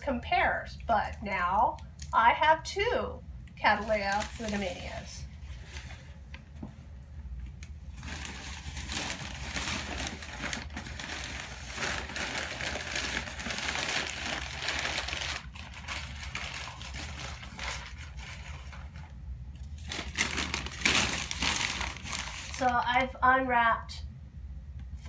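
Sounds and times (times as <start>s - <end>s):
packing material crinkling: 3.7s - 6.4s, 7.9s - 22.9s.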